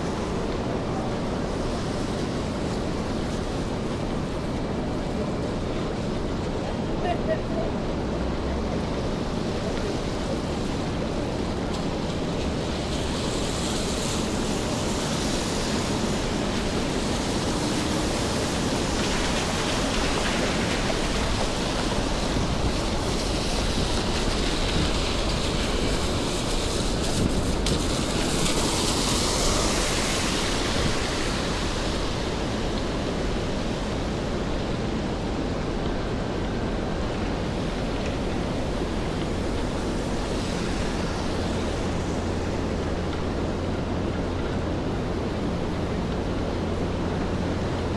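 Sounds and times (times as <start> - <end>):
rain on wet streets: 0.0 - 47.9.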